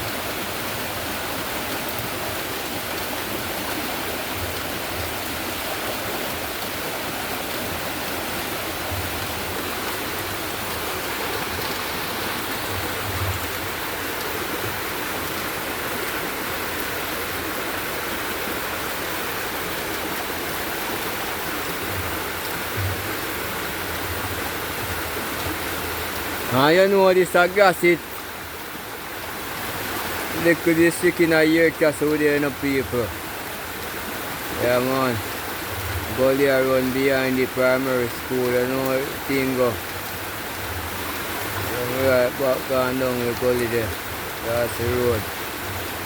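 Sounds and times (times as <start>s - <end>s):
heavy rain: 0.0s - 46.0s
storm water rushing down a gully: 0.0s - 46.0s.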